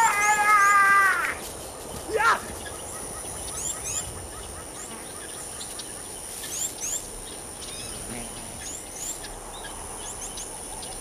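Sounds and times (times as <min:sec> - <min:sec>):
high rising bird chirps: 0:00.0 - 0:11.0
outdoor background hiss: 0:00.0 - 0:11.0.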